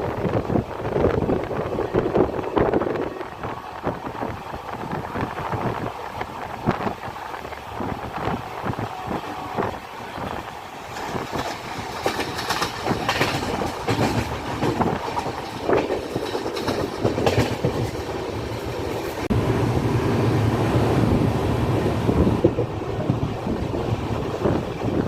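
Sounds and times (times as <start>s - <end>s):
train wheels clattering on rails: 8.2s - 19.3s
steady low rush: 18.0s - 24.5s.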